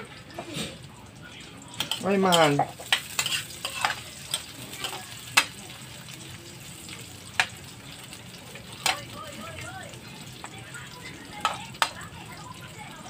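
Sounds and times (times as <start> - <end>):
metal spatula scraping a pan: 0.0 - 0.8, 1.8 - 5.6
meat sizzling in a wok: 0.0 - 13.0.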